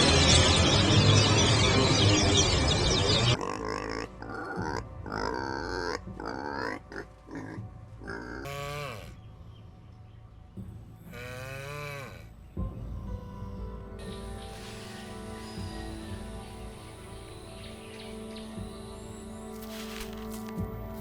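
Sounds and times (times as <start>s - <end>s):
young farm animal calling: 3.3s - 9.2s.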